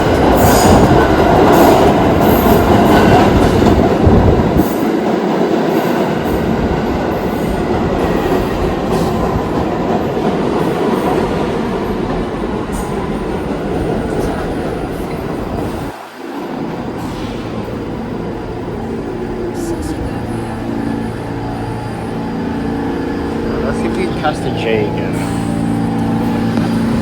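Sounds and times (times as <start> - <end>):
subway train rumble: 0.0 - 27.0.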